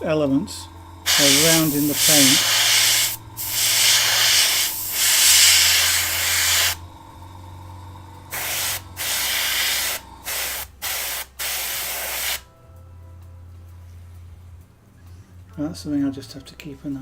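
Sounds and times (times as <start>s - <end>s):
low steady hum: 0.0s - 10.9s, 11.7s - 17.0s
airbrush spraying: 1.1s - 6.8s, 8.3s - 12.4s.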